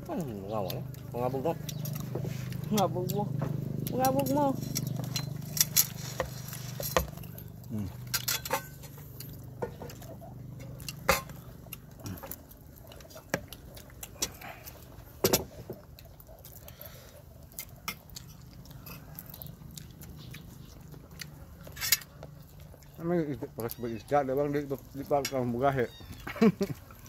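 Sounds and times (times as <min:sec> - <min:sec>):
person chewing and biting food: 0:00.2 - 0:04.0, 0:08.8 - 0:25.3.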